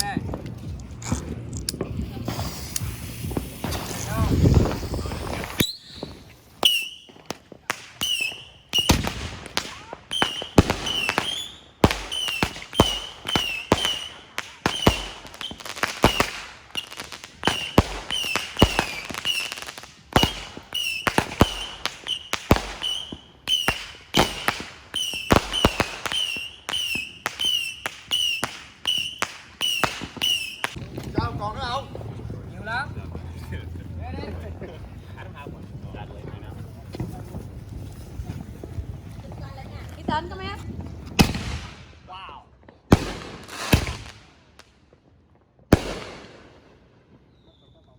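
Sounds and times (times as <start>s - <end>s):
firework bangs: 0.0s - 47.9s
firework whistles: 1.8s - 32.1s, 47.1s - 47.9s.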